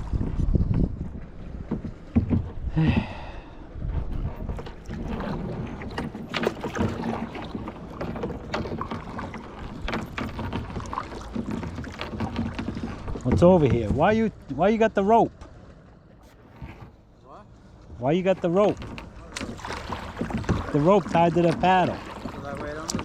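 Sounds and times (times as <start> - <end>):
paddle splashing in water: 0.0 - 23.0
knocks on kayak: 1.6 - 3.1, 6.0 - 14.2, 18.4 - 23.0.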